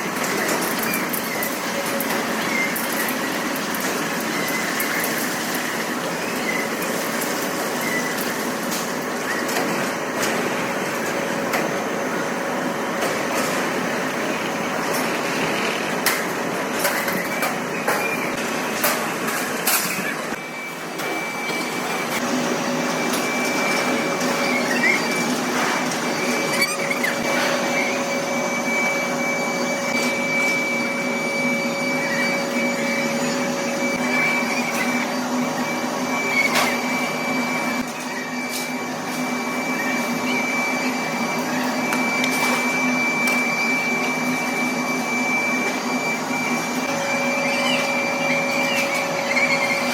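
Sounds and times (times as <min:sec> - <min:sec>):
machinery motor hum and whine: 0:00.0 - 0:49.9.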